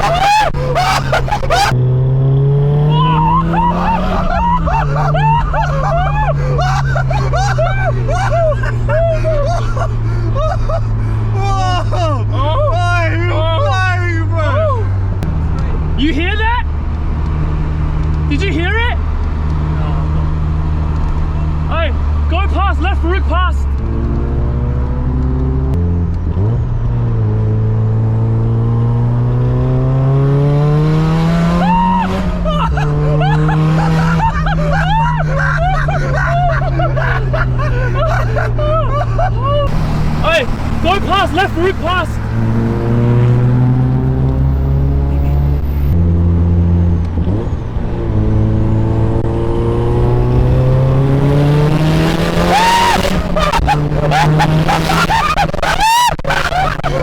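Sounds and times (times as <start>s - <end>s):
car engine revving: 0.0s - 22.4s, 23.6s - 57.0s.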